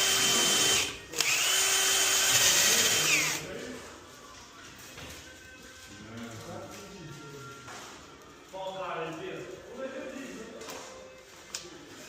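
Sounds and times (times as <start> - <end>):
power drill whining: 0.0 - 3.5.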